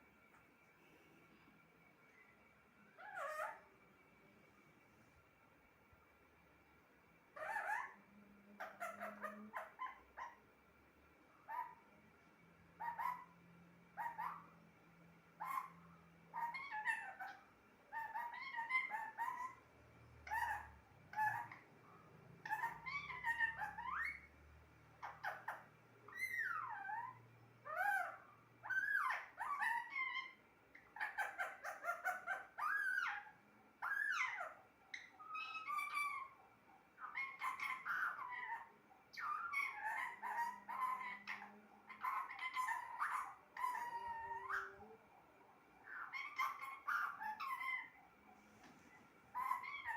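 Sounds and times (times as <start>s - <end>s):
parrot calling: 2.9s - 3.8s, 7.3s - 10.5s, 11.4s - 11.9s, 12.7s - 14.6s, 15.3s - 24.3s, 24.9s - 45.1s, 45.8s - 49.9s.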